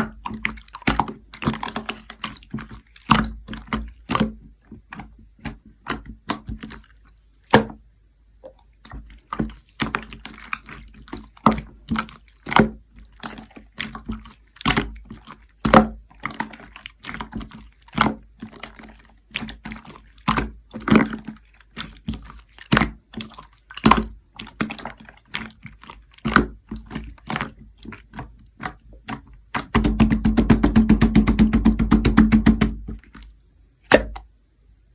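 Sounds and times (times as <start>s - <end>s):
slime squished by hand: 0.0s - 7.8s, 8.4s - 34.3s
slime crackling: 8.8s - 33.2s.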